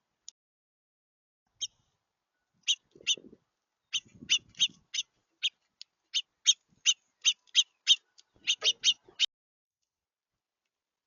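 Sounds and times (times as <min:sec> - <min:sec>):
songbirds chirping: 0:01.5 - 0:09.3.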